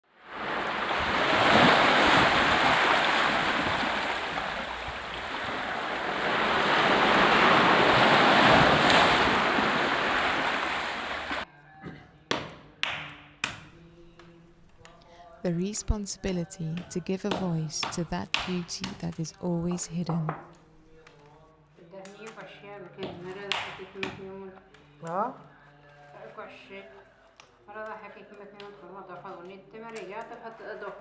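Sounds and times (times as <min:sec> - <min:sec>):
surf washing in: 0:00.1 - 0:11.4.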